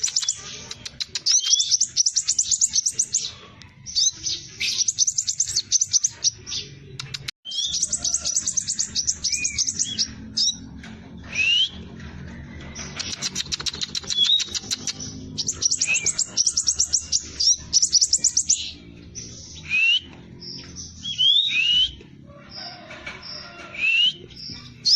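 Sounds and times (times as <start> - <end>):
bird singing rapid high notes: 4.0 - 10.6, 12.9 - 22.0.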